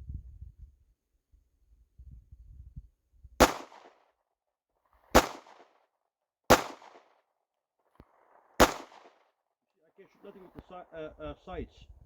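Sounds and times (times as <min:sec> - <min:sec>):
pistol shots with echo: 0:03.4 - 0:04.0, 0:05.1 - 0:05.7, 0:06.5 - 0:07.1, 0:08.6 - 0:09.2.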